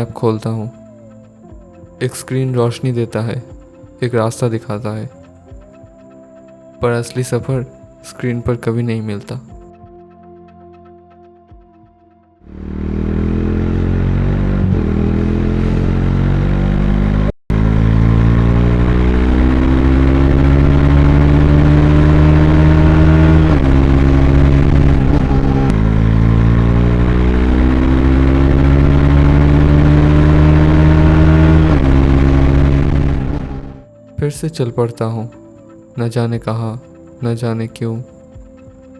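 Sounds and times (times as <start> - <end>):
motorcycle engine accelerating: 12.4 - 33.9.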